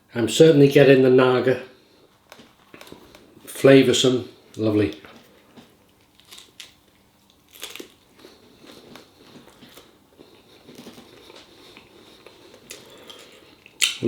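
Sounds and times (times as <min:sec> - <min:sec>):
person chewing: 0:05.0 - 0:14.0
crunchy bite: 0:06.1 - 0:09.9, 0:12.7 - 0:14.0.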